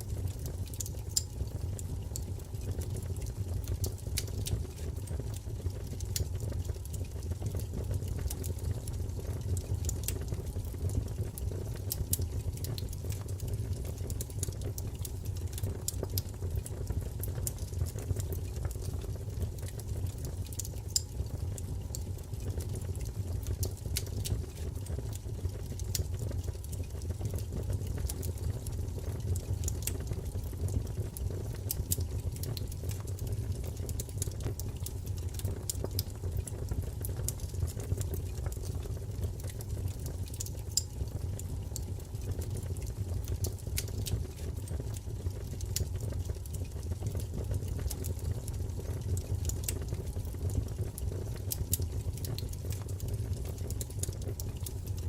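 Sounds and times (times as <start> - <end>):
low rumble of fire: 0.0 - 55.0
small sharp fire pops: 30.9 - 55.0.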